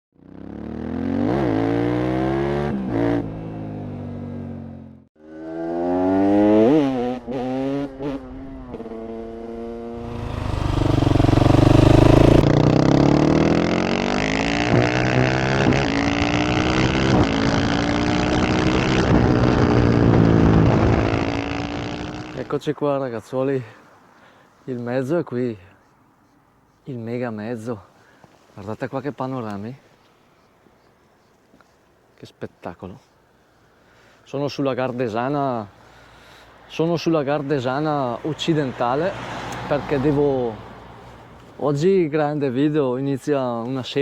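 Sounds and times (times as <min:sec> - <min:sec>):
motorcycle engine revving: 0:00.2 - 0:22.5.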